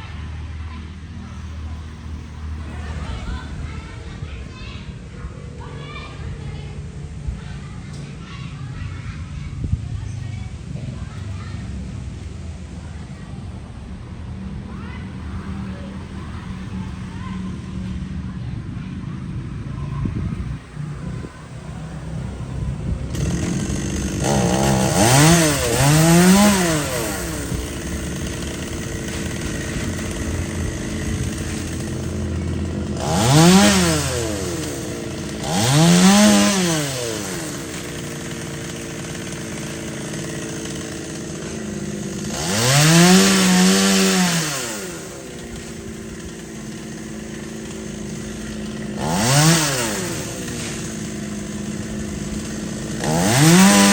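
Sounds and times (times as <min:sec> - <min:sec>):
chainsaw idling and revving: 0:00.0 - 0:06.2, 0:20.5 - 0:53.9.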